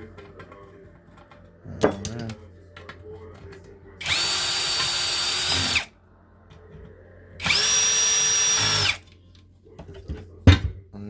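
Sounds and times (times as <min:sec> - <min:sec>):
power drill-driver whirring: 0:04.0 - 0:05.9, 0:07.4 - 0:09.1.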